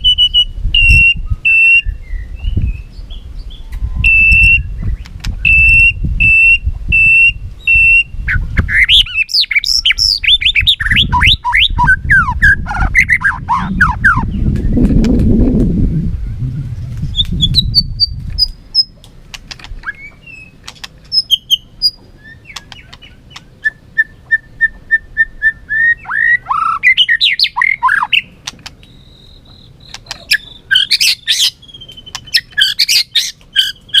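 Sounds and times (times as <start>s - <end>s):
bird singing: 0.0s - 15.0s, 16.2s - 34.0s
low rumble: 11.8s - 18.8s.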